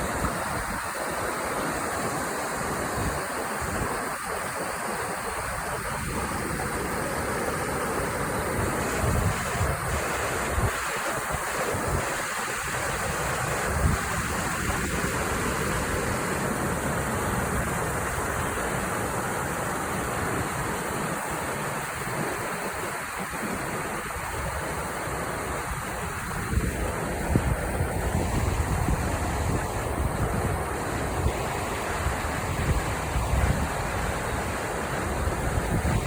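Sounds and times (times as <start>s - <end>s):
creek water flowing: 0.0s - 36.0s
wind rumbling on microphone: 5.3s - 19.1s, 20.0s - 36.0s.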